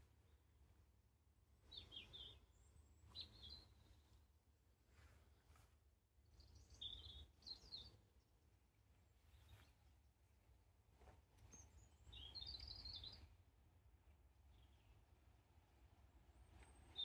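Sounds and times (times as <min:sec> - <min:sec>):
small birds chirping: 0:01.6 - 0:04.2, 0:06.2 - 0:08.1, 0:11.4 - 0:13.4, 0:14.5 - 0:15.1, 0:16.4 - 0:17.0.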